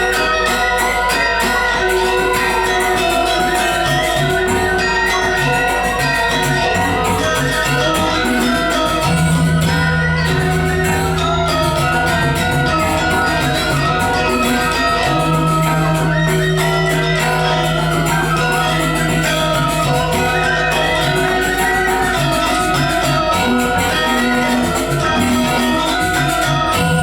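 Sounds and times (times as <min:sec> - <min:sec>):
gamelan metallophones ringing: 0:00.0 - 0:27.0
low held tone: 0:00.0 - 0:27.0.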